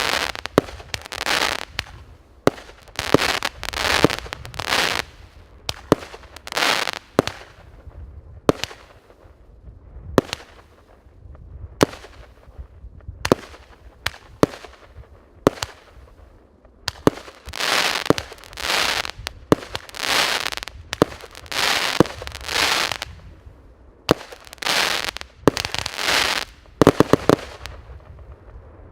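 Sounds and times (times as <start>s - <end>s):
firework bangs: 0.0s - 7.7s, 16.9s - 23.3s, 24.1s - 28.4s
firework rushing burst: 0.0s - 7.7s, 16.9s - 23.3s, 24.1s - 28.1s.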